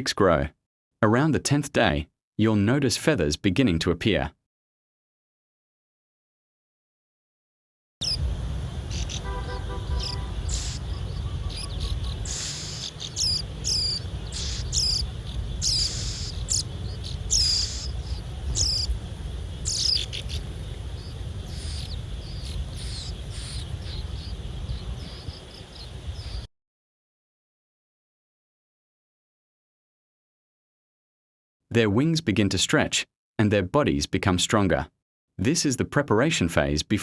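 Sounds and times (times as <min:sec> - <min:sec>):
birds chirping: 0:08.0 - 0:26.5
steady low rumble: 0:08.0 - 0:26.5.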